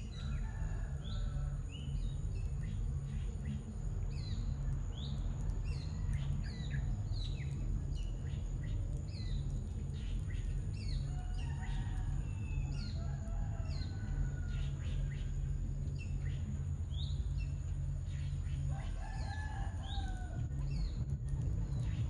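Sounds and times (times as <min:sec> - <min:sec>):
small birds chirping: 0:00.0 - 0:22.0
steady low rumble: 0:00.0 - 0:22.0
low warbling notes: 0:19.8 - 0:22.0.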